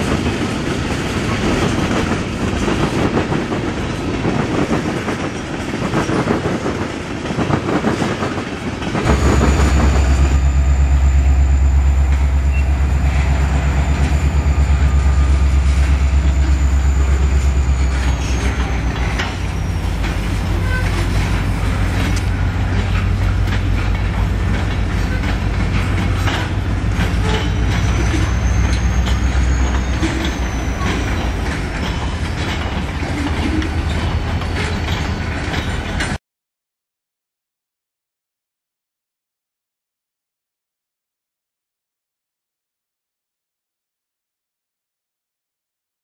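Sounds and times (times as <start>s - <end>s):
freight train rumbling past: 0.0s - 36.2s
wheels clicking over rail joints: 12.1s - 36.2s.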